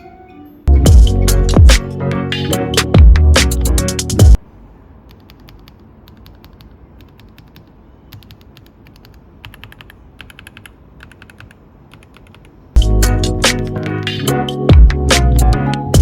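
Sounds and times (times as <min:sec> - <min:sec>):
music: 0:00.0 - 0:04.4, 0:12.8 - 0:16.0
mechanical keyboard typing: 0:05.1 - 0:12.6.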